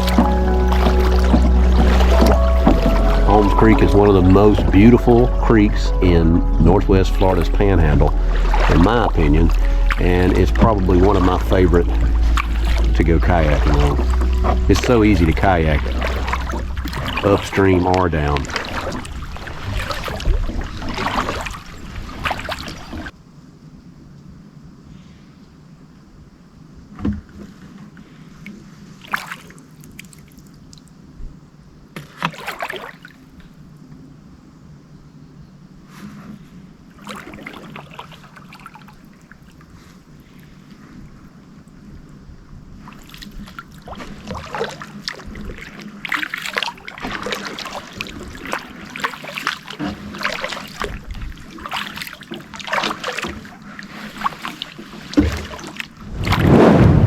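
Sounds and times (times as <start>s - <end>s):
low knock: 0.0s - 17.2s
kayak paddle splashing: 0.0s - 23.2s, 27.2s - 30.7s, 32.0s - 33.4s, 36.0s - 41.7s, 42.7s - 57.0s.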